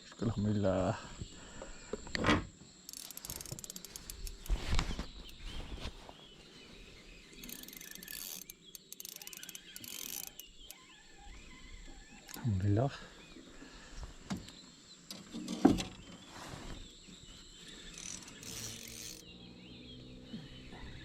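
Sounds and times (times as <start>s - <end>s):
insects chirping: 0.0s - 21.0s
fishing tackle clicking: 2.9s - 4.5s, 7.3s - 10.8s, 17.9s - 19.2s.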